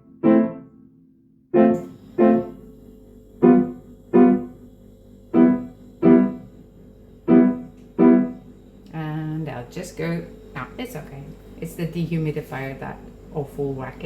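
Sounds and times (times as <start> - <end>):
piano chords: 0.0 - 8.8
dehumidifier hum: 0.0 - 14.0.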